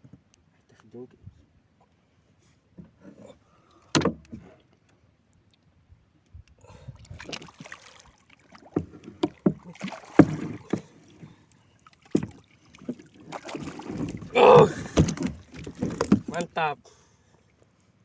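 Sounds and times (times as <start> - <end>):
water splashing: 7.1 - 16.8.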